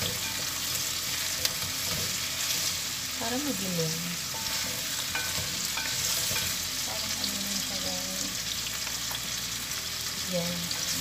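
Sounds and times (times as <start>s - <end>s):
food frying in hot oil: 0.0s - 11.0s
spatula scraping a pot: 4.3s - 6.6s.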